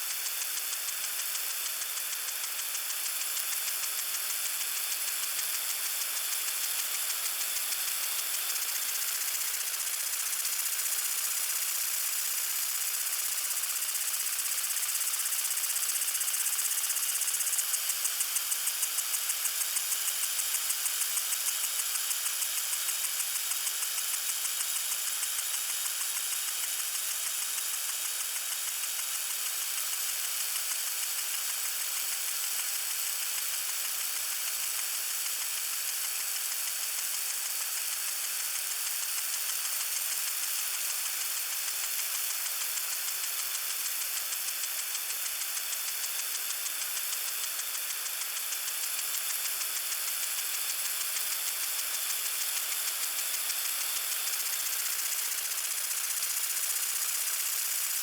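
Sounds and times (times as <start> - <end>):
sprinkler spraying water: 0.0 - 58.0
rapid sprinkler ticking: 0.1 - 58.0.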